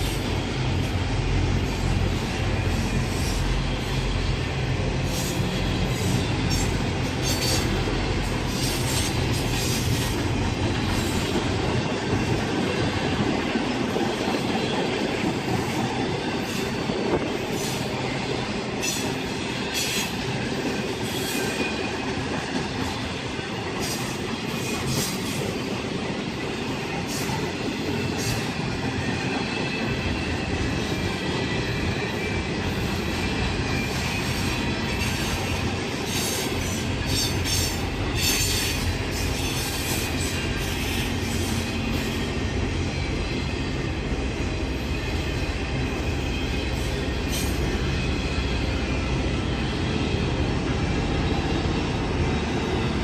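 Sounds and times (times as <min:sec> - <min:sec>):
train wheels clicking over rail joints: 0:04.8 - 0:43.2.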